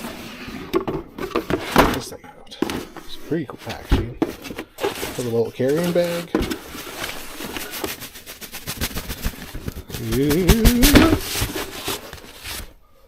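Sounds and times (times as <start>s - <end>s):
packaging and bag rustling: 0.0s - 12.8s
person humming: 10.0s - 11.3s.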